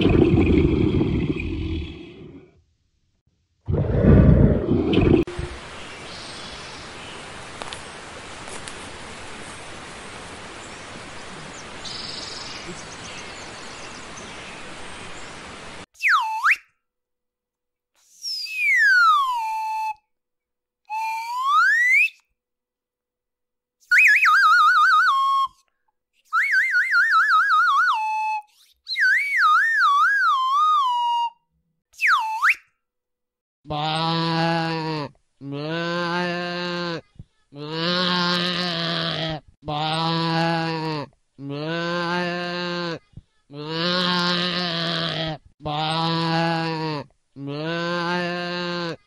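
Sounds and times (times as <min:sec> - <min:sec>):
outdoor ambient hiss: 0:05.3 - 0:15.9
cartoon warbling whistle: 0:18.2 - 0:20.0, 0:20.9 - 0:22.2, 0:26.4 - 0:31.4.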